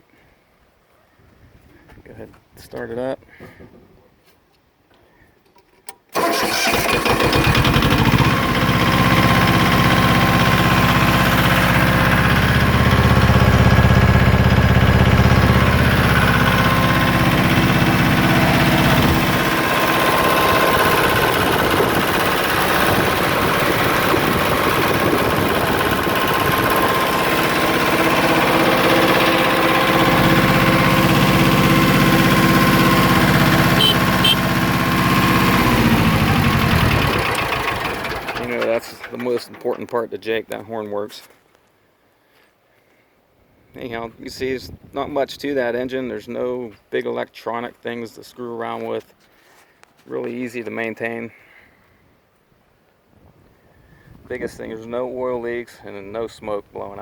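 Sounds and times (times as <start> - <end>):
tractor diesel engine running: 6.1 - 40.0.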